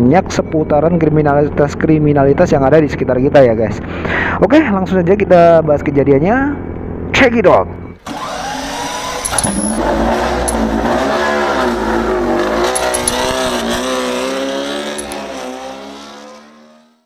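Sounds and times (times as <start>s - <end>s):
vehicle engine revving: 8.2s - 16.9s.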